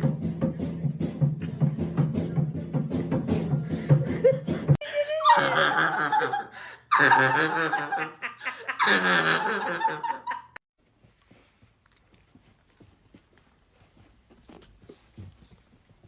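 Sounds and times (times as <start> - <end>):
person laughing hard: 3.7 - 10.6.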